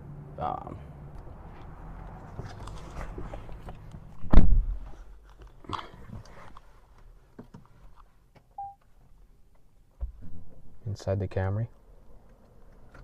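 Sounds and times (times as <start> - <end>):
car door shutting: 4.2 - 4.8
short beep: 8.6 - 8.8.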